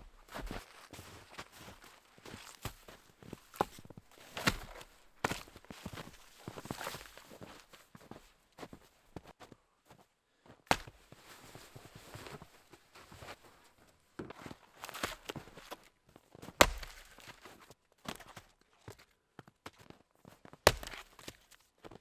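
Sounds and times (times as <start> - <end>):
wood crunching and scraping: 1.6 - 7.5, 14.3 - 18.3, 20.7 - 21.6
axe chopping wood: 4.3 - 5.6, 10.7 - 11.0, 16.6 - 17.4, 20.7 - 21.4.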